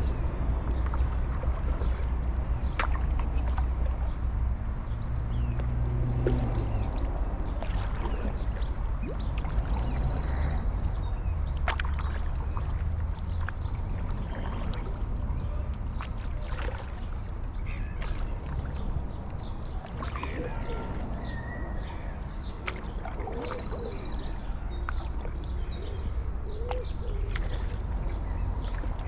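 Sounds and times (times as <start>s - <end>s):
low rumble of wind and water: 0.0s - 29.0s
songbirds chirping: 0.0s - 29.0s.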